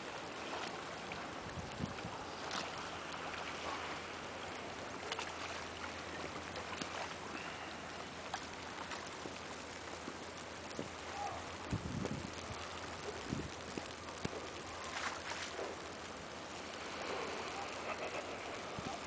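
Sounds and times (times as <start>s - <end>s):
snowstorm hiss: 0.0s - 19.0s
light clicks and ticks: 11.6s - 19.0s.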